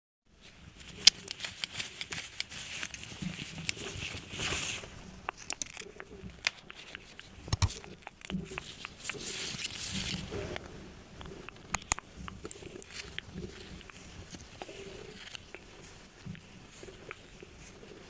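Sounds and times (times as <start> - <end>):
rustling: 0.3 - 18.0
objects clicking and tapping: 7.5 - 9.2.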